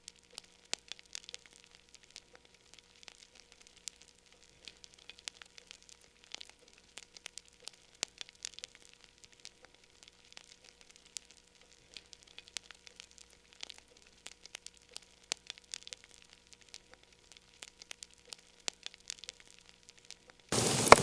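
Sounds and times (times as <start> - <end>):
wood fire crackling: 20.5 - 21.0.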